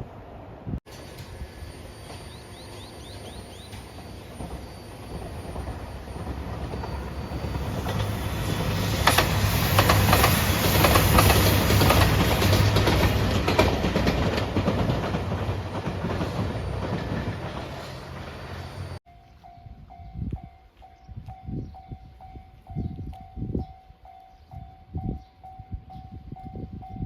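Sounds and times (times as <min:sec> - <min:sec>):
train rumbling past: 0:00.0 - 0:23.0
wheels clacking over rail joints: 0:03.6 - 0:19.0.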